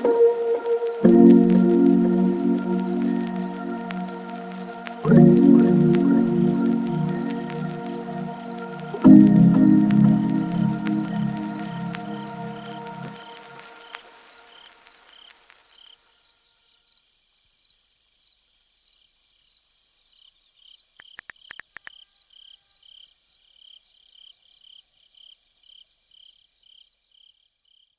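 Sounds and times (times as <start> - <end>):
cricket high trill: 0.0 - 14.5
cricket chirping: 0.0 - 27.9.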